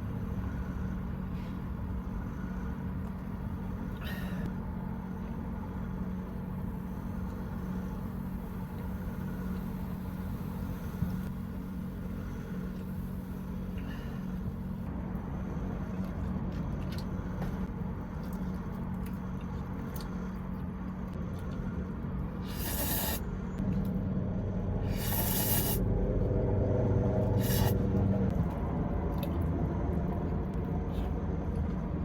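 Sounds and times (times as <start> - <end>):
truck diesel engine running: 19.3 - 32.0
brief hissing: 22.4 - 23.2, 24.9 - 25.9, 27.4 - 27.8.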